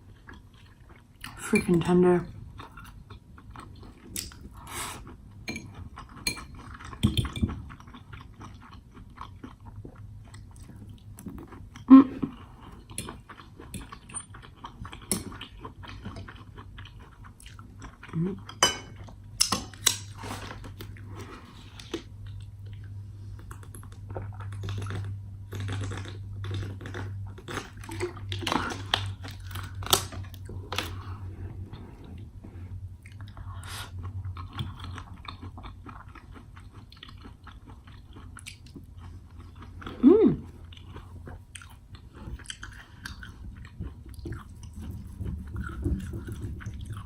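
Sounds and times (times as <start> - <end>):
steady low hum: 0.0 - 47.0
chewing: 2.6 - 47.0
cutlery clinking against a plate: 18.6 - 20.0.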